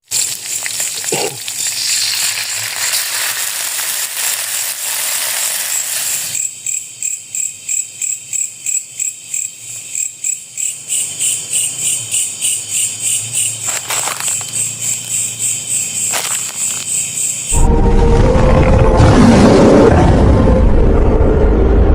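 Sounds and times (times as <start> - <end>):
high insect trill: 0.0 - 17.6
insect hiss: 0.0 - 17.6
insects chirping rhythmically: 0.2 - 17.6.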